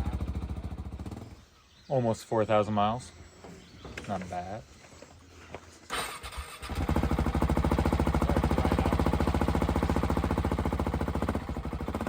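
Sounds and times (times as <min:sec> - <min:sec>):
motorcycle engine running: 0:00.0 - 0:01.4, 0:06.6 - 0:12.0.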